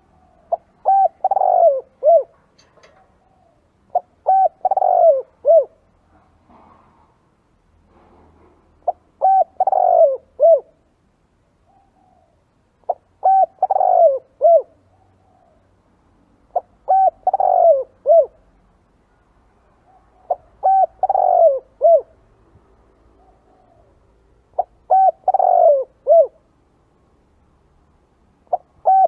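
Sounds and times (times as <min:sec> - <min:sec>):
dove cooing: 0:00.0 - 0:05.9, 0:08.8 - 0:10.8, 0:11.7 - 0:15.7, 0:16.5 - 0:18.4, 0:19.9 - 0:22.2, 0:23.1 - 0:26.5, 0:28.4 - 0:29.0.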